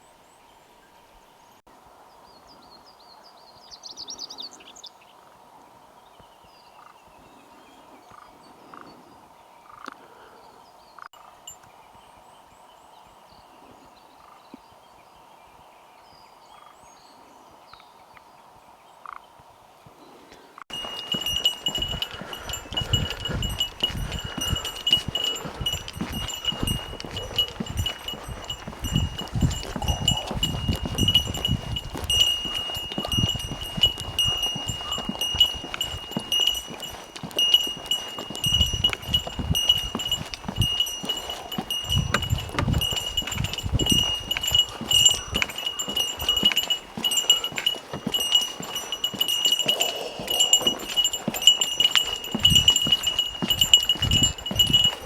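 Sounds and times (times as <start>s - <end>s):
small metal bell jingling: 20.7s - 55.0s
wind rumbling on microphone: 20.7s - 55.0s.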